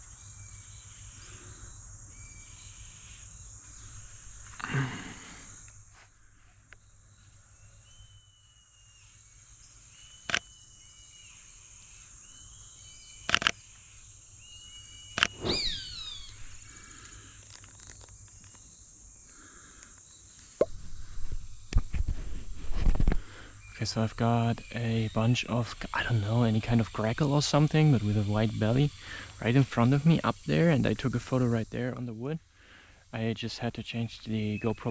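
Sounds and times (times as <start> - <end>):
insect drone: 0.0 - 26.6
whistled bird notes: 15.3 - 17.2.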